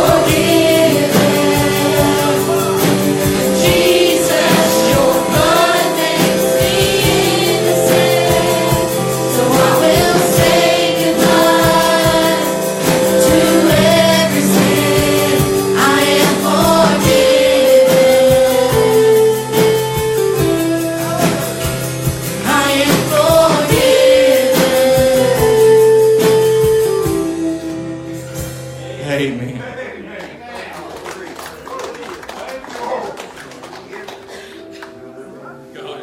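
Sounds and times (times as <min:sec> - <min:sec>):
group singing a hymn: 0:00.0 - 0:27.3
instrumental accompaniment: 0:00.0 - 0:29.6.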